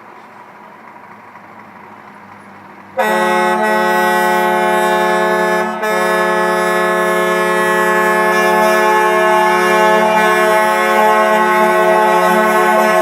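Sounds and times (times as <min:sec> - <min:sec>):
truck air horns blaring: 0:03.0 - 0:13.0.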